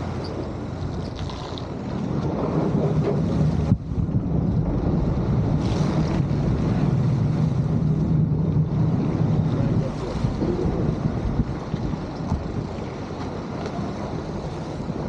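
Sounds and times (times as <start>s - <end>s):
boat diesel engines humming: 0.0s - 15.0s
wind buffeting microphone: 0.0s - 15.0s.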